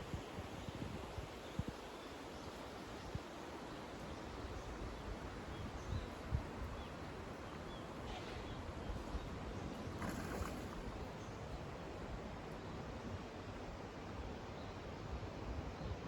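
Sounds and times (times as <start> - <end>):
wind on microphone: 0.0 - 2.0, 4.5 - 11.8
river water rushing: 6.9 - 15.1.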